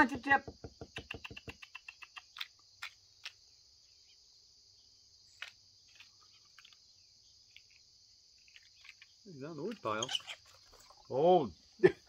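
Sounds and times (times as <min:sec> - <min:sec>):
insects droning: 0:00.0 - 0:12.0
quick ticks: 0:00.9 - 0:03.4.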